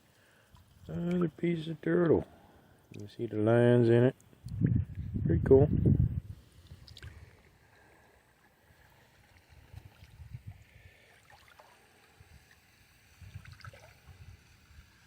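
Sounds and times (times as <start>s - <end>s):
river water sloshing and gurgling: 6.4s - 15.0s.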